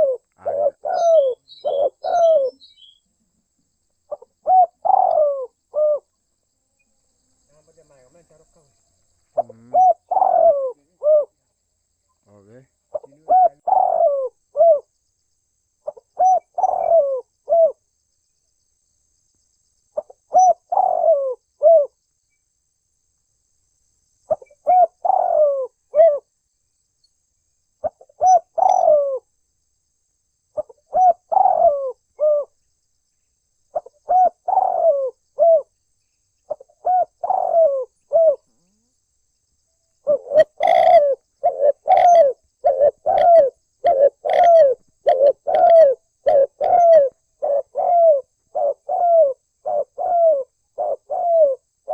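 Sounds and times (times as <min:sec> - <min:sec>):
dove cooing: 0:00.0 - 0:02.9, 0:04.1 - 0:06.1, 0:09.4 - 0:11.4, 0:12.3 - 0:14.9, 0:15.8 - 0:17.8, 0:20.0 - 0:22.0, 0:24.3 - 0:26.2, 0:27.8 - 0:29.3, 0:30.6 - 0:32.6, 0:33.7 - 0:35.7, 0:36.5 - 0:38.9, 0:40.0 - 0:51.9.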